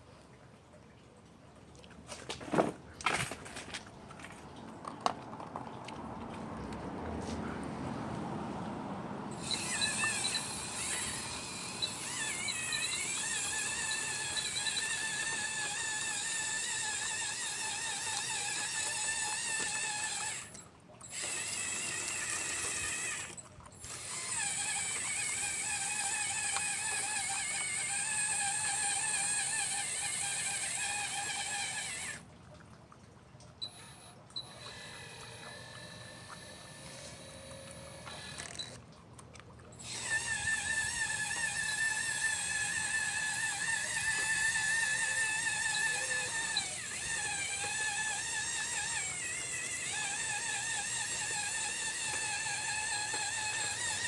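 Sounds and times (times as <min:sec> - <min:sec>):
model excavator motors whining: 0:09.2 - 0:32.3, 0:33.6 - 0:38.9, 0:39.8 - 0:54.0.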